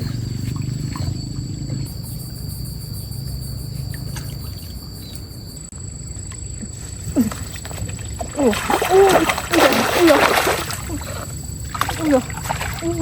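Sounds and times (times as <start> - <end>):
thin high whine: 0.0 - 13.0
stream water rumbling: 6.2 - 13.0.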